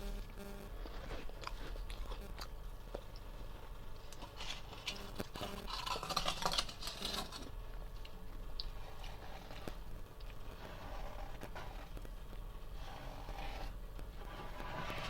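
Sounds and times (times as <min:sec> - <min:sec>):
freezer frost being scraped: 0:04.1 - 0:07.6, 0:08.6 - 0:15.0.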